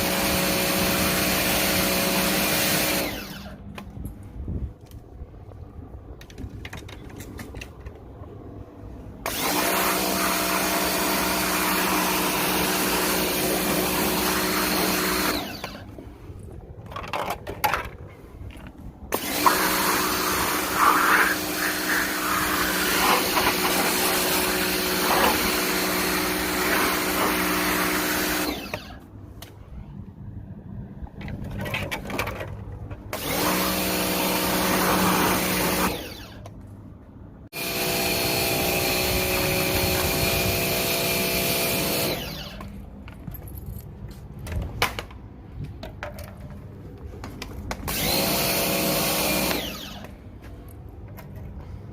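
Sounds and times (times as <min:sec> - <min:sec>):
pressure washer motor hum: 0:00.0 - 0:03.6, 0:09.2 - 0:16.0, 0:19.1 - 0:29.0, 0:33.1 - 0:36.4, 0:37.6 - 0:42.6, 0:47.9 - 0:50.2.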